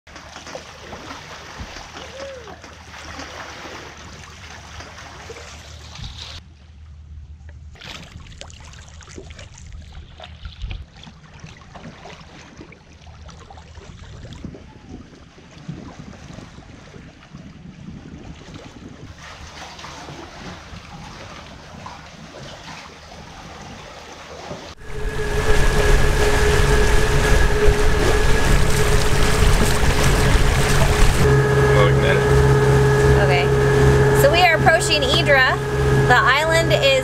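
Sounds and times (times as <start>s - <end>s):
water rushing along hull: 0.1s - 6.9s, 7.6s - 37.0s
wind on microphone: 13.8s - 19.5s, 24.8s - 37.0s
low steady hum: 24.8s - 37.0s.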